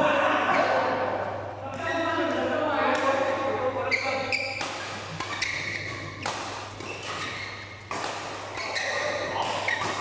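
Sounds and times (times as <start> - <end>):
rackets hitting shuttlecock: 4.3 - 10.0.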